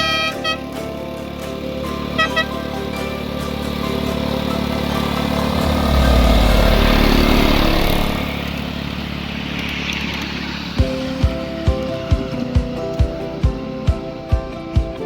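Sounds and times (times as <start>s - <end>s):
miniature locomotive passing: 0.0s - 15.0s.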